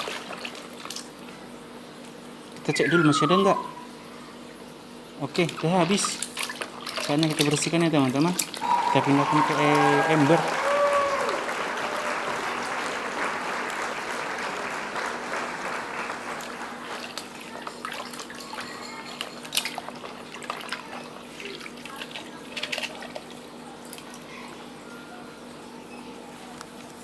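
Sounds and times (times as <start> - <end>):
water pouring into a bucket: 5.4 - 9.7.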